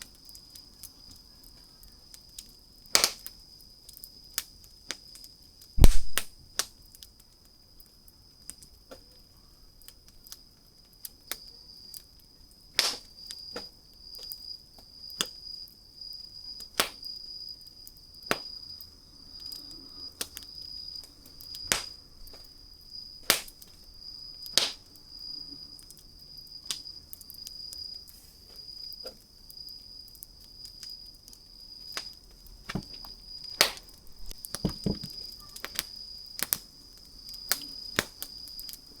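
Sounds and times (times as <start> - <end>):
wood fire crackling: 0.0 - 39.0
pop with low thud: 5.8 - 6.3, 34.2 - 35.2.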